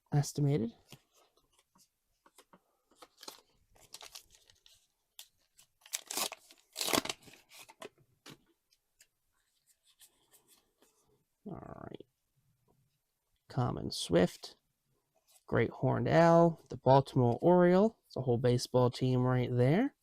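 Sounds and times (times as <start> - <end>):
cards rustling and clicking: 0.8 - 8.4
wrapper crinkling: 3.0 - 7.8
wrapper tearing: 3.1 - 7.8.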